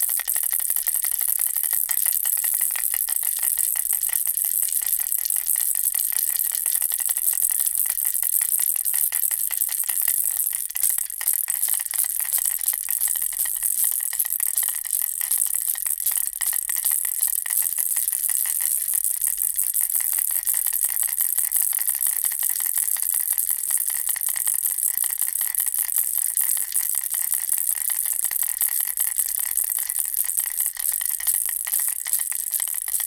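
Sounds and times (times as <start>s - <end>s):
baby rattle shaking: 27.3s - 33.0s.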